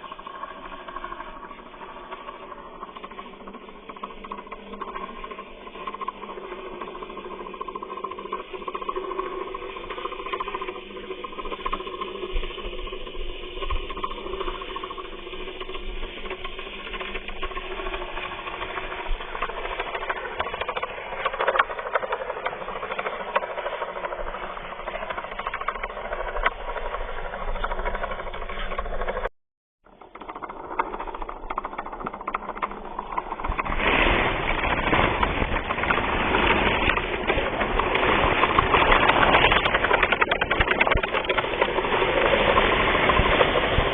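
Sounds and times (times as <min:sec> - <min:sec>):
electric gear motor rattling: 0:00.0 - 0:43.9.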